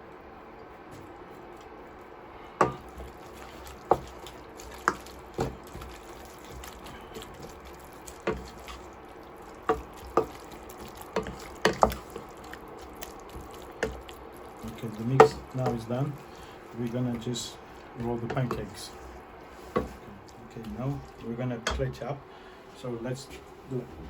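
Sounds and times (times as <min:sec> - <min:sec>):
utensil knocking against a pan: 0:02.6 - 0:02.9, 0:11.2 - 0:12.0.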